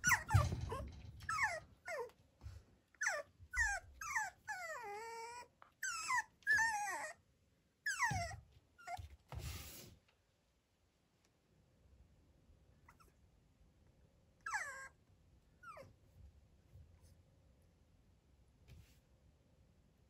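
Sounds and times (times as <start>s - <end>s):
puppy whining: 0.0s - 2.2s, 2.9s - 9.2s, 12.9s - 13.2s, 14.4s - 16.0s.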